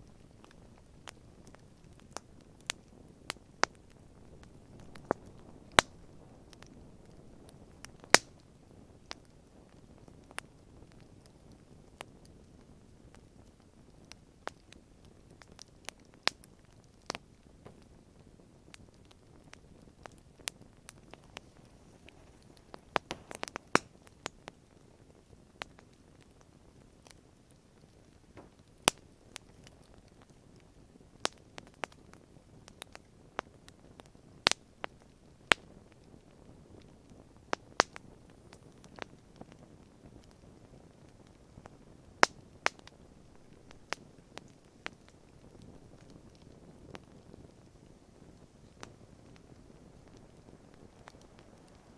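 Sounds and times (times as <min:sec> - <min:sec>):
campfire crackling: 0:00.0 - 0:51.9
faint low hiss: 0:00.0 - 0:51.9.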